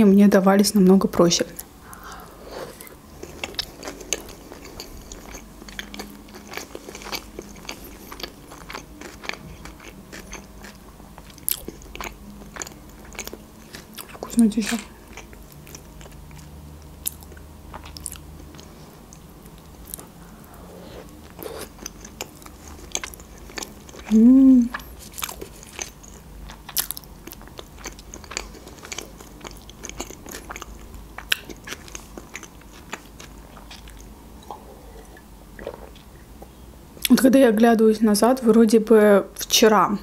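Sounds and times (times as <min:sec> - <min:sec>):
person chewing food: 0:01.6 - 0:14.3, 0:15.0 - 0:37.1
person humming: 0:24.1 - 0:24.7.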